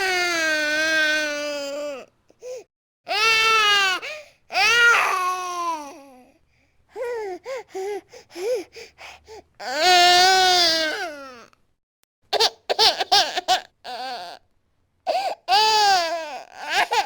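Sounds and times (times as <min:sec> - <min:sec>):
infant crying: 0:00.0 - 0:06.3, 0:09.6 - 0:11.5, 0:12.4 - 0:14.4, 0:15.1 - 0:17.0.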